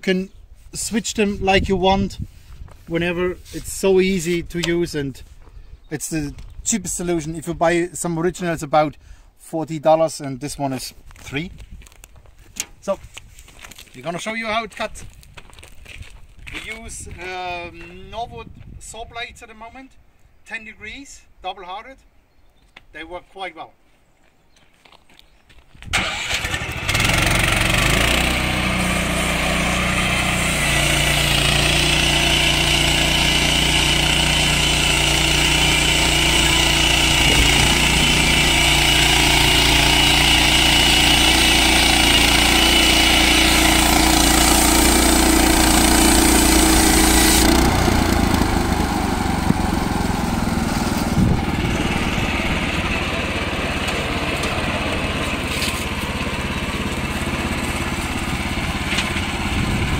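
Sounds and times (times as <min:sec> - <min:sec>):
small petrol engine running: 0:26.0 - 0:59.9
band saw blade cutting log: 0:26.9 - 0:52.2, 0:52.9 - 0:59.8.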